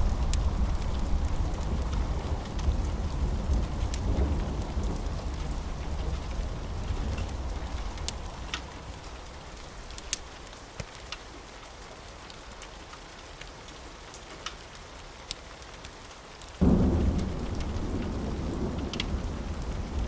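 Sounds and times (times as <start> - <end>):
thunder rumble: 0.0 - 10.0, 16.6 - 20.0
rain falling on a surface: 0.0 - 20.0.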